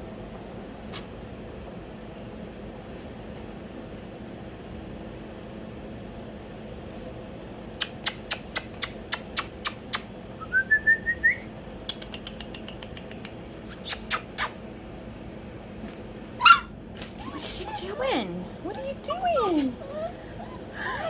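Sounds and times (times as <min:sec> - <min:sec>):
puppy whining: 0:07.8 - 0:10.1, 0:13.1 - 0:14.6, 0:16.4 - 0:21.0
sharp clicks: 0:07.8 - 0:10.1
puppy yelp: 0:13.7 - 0:14.6, 0:16.4 - 0:21.0.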